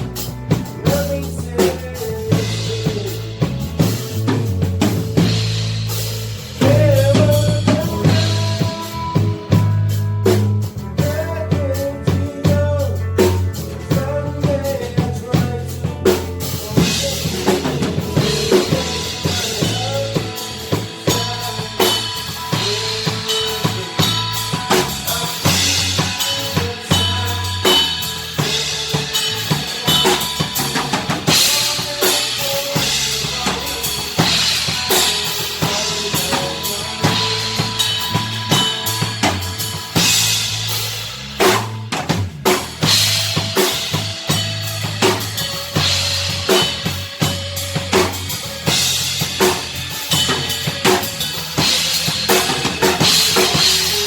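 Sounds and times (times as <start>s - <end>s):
drum kit: 0.0s - 54.0s
live band playing: 0.0s - 54.0s
sustained bass notes: 0.0s - 54.0s
cymbals: 16.1s - 54.0s.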